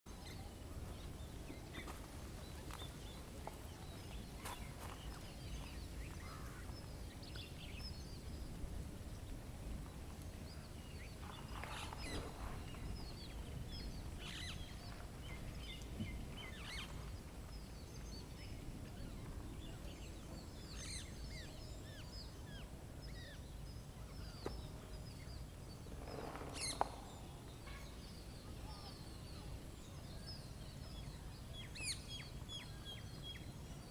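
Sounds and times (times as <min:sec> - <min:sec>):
birds chirping and calling: 0:10.5 - 0:33.4.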